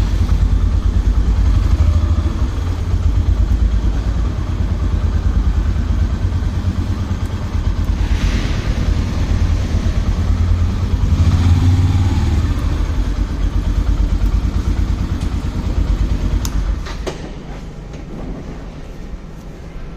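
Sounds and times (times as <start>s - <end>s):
motorcycle engine and road rumble: 0.0s - 19.9s.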